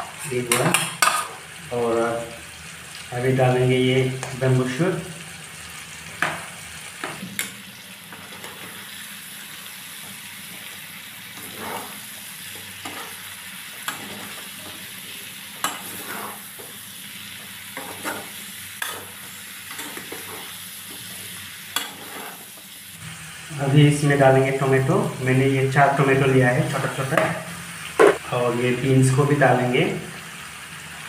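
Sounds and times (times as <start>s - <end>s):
food sizzling in a wok: 0.0s - 31.0s
spatula scraping a pan: 0.1s - 1.5s, 7.0s - 9.1s, 9.9s - 22.8s.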